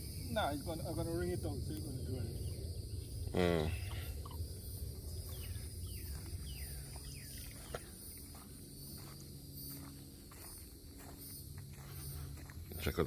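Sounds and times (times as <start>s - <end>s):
low rumble: 0.0s - 9.5s
high insect trill: 0.0s - 13.0s.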